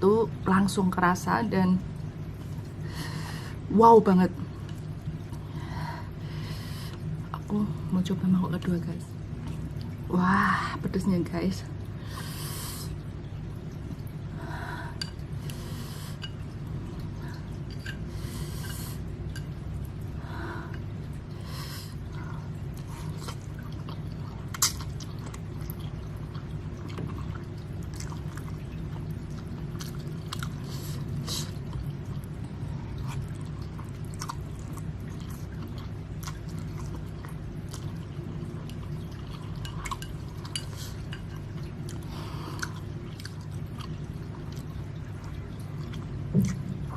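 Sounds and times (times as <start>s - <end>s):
steady low hum: 0.0s - 46.9s
chewing: 22.7s - 30.7s, 31.3s - 46.9s.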